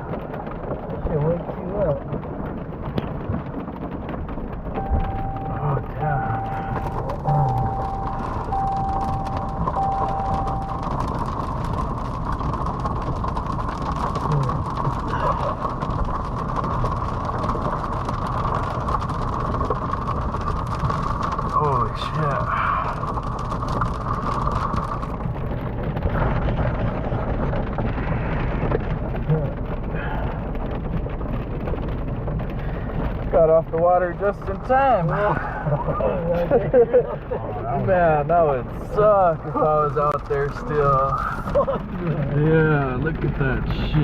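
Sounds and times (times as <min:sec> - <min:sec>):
low rumble of wind: 0:00.0 - 0:44.0
steady rain: 0:00.0 - 0:44.0
thunder rumbling: 0:00.0 - 0:44.0
electronic warning beeps: 0:04.8 - 0:11.3.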